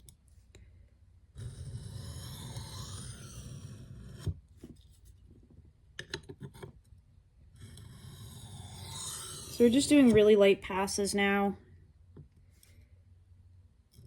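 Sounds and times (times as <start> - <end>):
knife scraping on whetstone: 1.4 - 4.4, 7.6 - 10.2.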